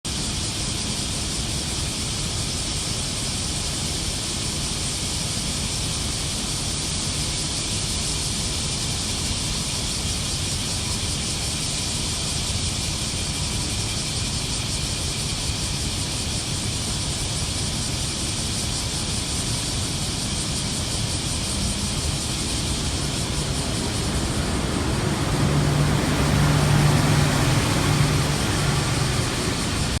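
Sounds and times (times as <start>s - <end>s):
cicadas singing: 0.1s - 30.0s
low rumble: 21.1s - 30.0s.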